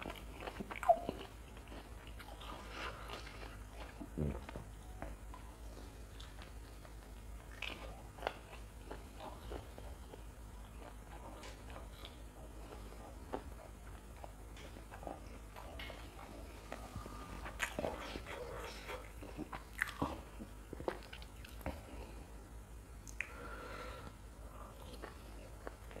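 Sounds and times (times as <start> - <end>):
chewing with wet mouth clicks: 0.0 - 22.1, 23.0 - 23.4, 24.5 - 26.0.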